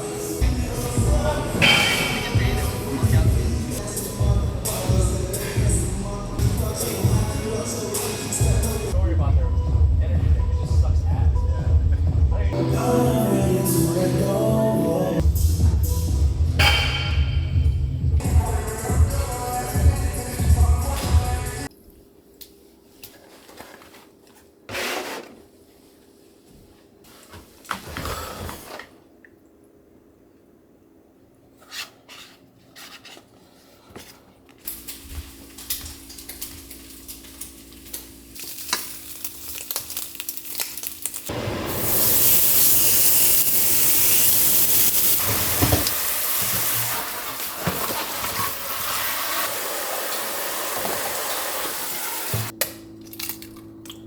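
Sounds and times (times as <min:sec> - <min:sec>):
food sizzling in a pan: 0:36.6 - 0:47.6.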